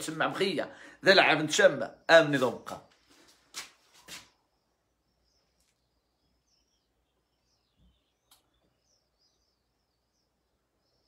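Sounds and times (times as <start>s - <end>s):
faint click: 8.2s - 8.5s.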